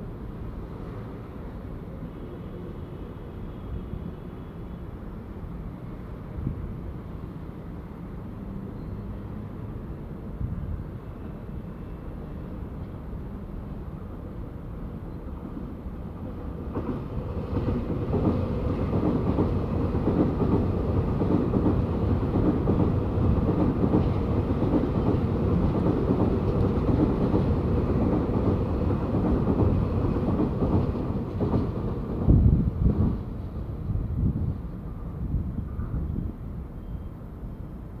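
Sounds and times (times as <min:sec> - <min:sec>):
train wheels rushing on rail: 0:00.1 - 0:38.0
wind gusts buffeting microphone: 0:16.7 - 0:36.7.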